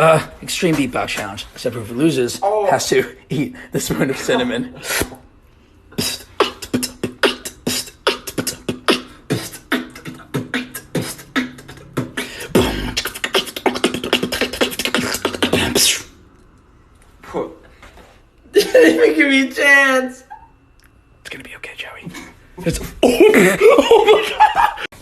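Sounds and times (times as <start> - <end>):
person beatboxing: 5.9 - 16.2.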